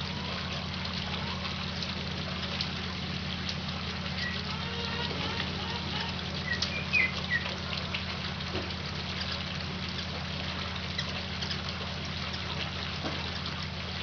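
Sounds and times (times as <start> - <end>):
low hum and hiss: 0.0 - 14.0
hummingbird chirps: 6.4 - 7.5.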